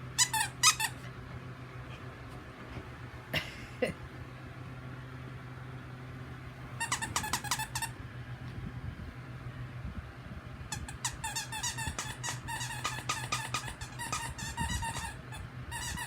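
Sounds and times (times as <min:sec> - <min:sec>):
squeaky dog toy squeaks: 0:00.2 - 0:01.0, 0:06.8 - 0:08.0, 0:10.7 - 0:16.0.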